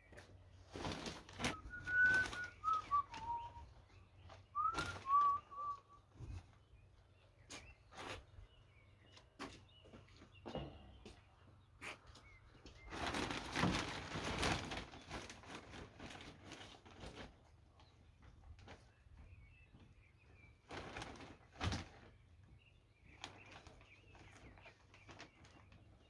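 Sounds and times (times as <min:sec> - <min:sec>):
rustling and light knocks: 0:00.0 - 0:26.0
person whistling a tune: 0:01.5 - 0:03.6, 0:04.6 - 0:06.0.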